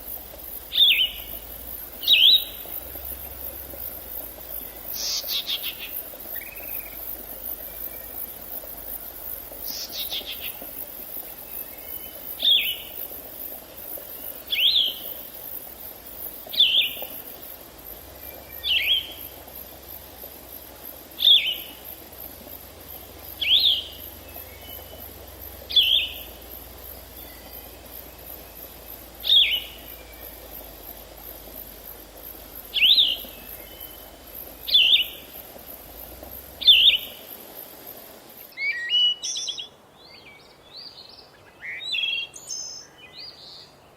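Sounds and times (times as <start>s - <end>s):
high insect buzz: 0.0s - 38.6s
songbird sharp sweeping call: 0.7s - 3.0s, 4.7s - 7.0s, 38.5s - 40.6s.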